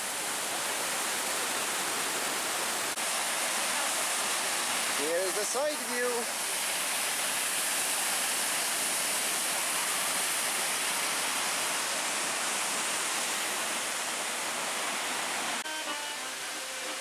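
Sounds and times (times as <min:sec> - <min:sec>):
waterfall rushing: 0:00.0 - 0:17.0
music: 0:15.6 - 0:17.0.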